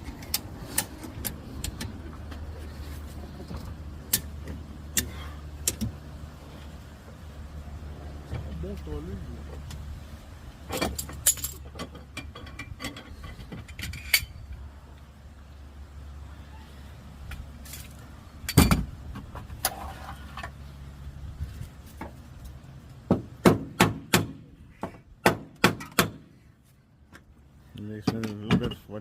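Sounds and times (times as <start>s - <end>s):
low engine hum: 0.0s - 25.2s
metal knocks on car body panel: 23.1s - 24.4s.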